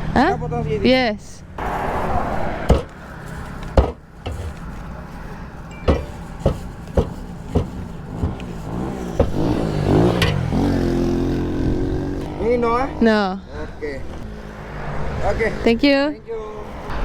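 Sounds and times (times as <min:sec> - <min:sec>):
road traffic: 0:00.0 - 0:17.0
vehicle passing: 0:00.0 - 0:17.0
cleaver chopping chicken: 0:02.7 - 0:03.0, 0:03.8 - 0:04.7, 0:05.9 - 0:10.6.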